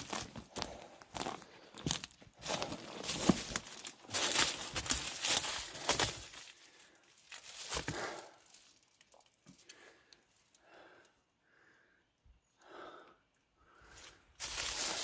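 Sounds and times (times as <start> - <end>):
footsteps crunching dry leaves: 1.2 - 8.7, 14.4 - 15.0.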